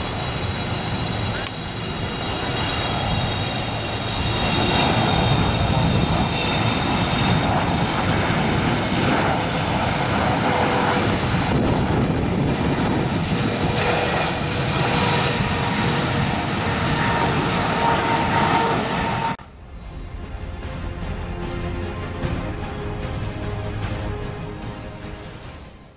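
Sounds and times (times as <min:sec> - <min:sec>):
jet engines roaring: 0:00.0 - 0:19.8.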